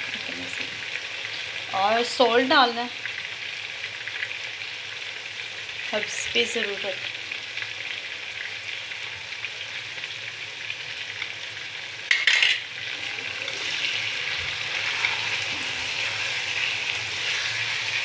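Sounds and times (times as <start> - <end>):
oil sizzling with frying vegetables: 0.0 - 18.0
spatula stirring vegetables: 12.9 - 18.0.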